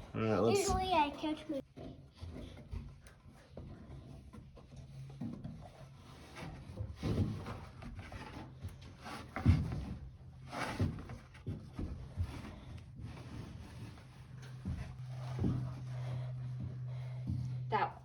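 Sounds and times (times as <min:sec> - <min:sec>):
rope rubbing: 0:06.0 - 0:17.2.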